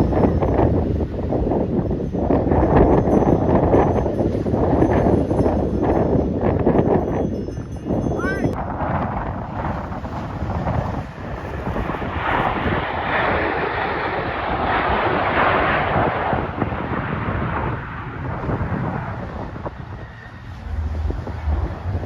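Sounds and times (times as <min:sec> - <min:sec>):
wind buffeting microphone: 0:00.0 - 0:22.0
jet fighter engines roaring: 0:08.6 - 0:22.0.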